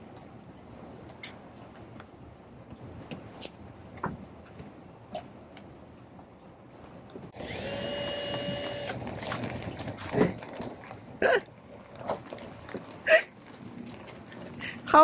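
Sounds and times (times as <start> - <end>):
power drill running: 7.4 - 9.0.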